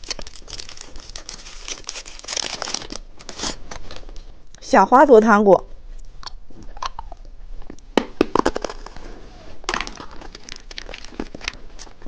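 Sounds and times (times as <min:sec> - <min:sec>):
plastic packaging clicks and crinkling: 0:00.0 - 0:04.2, 0:09.7 - 0:12.0.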